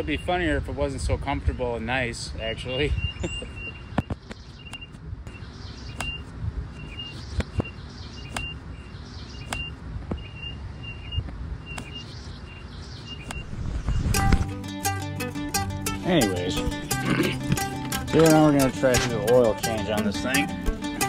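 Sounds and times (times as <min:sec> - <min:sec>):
bird short high chirp: 0:02.7 - 0:14.2
sharp clicks: 0:04.0 - 0:08.6, 0:09.4 - 0:09.8, 0:11.7 - 0:12.2.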